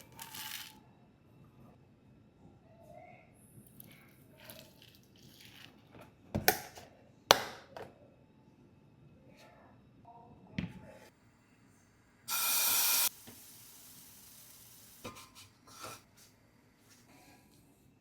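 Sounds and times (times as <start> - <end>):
loud burst of hiss: 12.3 - 15.0
faint hiss: 12.3 - 17.2.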